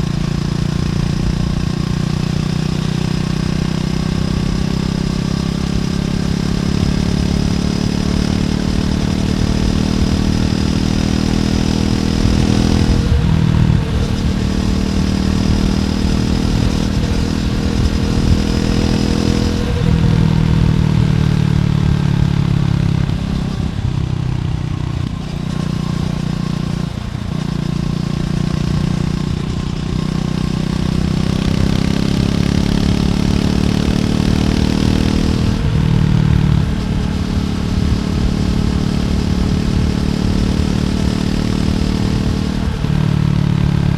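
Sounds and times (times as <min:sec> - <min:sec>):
motorcycle engine riding: 0:00.0 - 0:43.9.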